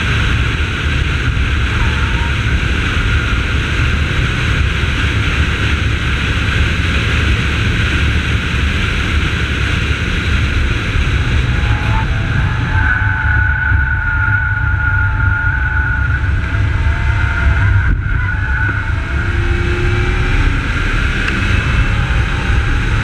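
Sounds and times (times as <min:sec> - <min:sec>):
car engine running under load: 0:00.0 - 0:23.0
road and wind noise: 0:00.0 - 0:23.0
steady whine: 0:00.0 - 0:23.0.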